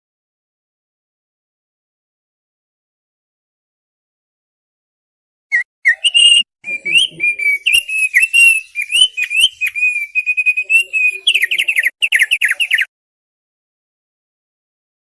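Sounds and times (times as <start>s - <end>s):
bird singing whistled chirps: 5.5s - 12.9s.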